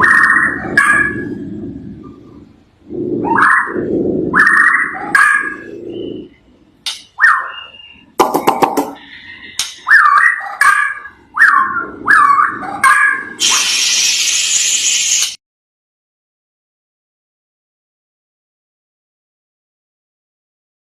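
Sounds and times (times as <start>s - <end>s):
bird whistling calls: 7.2s - 8.2s
harsh hissing burst: 13.4s - 15.4s.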